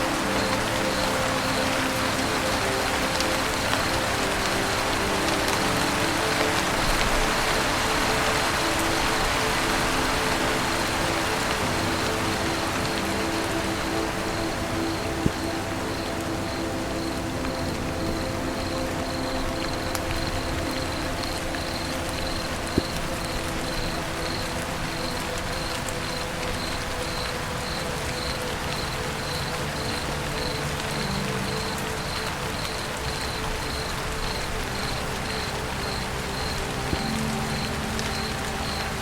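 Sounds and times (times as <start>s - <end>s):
rain falling on a roof: 0.0s - 39.0s
cricket chirping: 11.8s - 39.0s.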